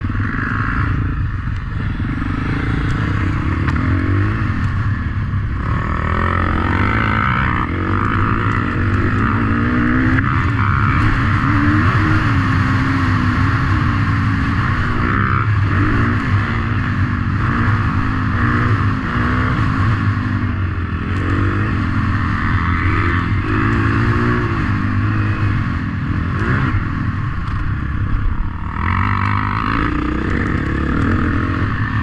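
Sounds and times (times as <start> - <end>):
motorcycle engines revving: 0.0 - 32.0.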